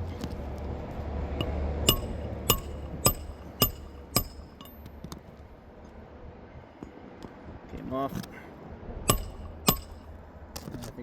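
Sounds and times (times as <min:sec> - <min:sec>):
hammer striking metal: 0:01.4 - 0:04.9, 0:09.1 - 0:10.1.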